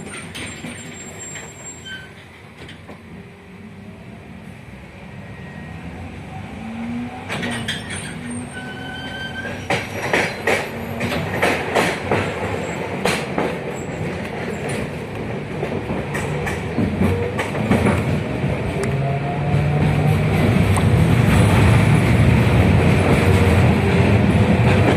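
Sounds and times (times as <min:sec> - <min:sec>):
tram running: 0:00.0 - 0:24.9.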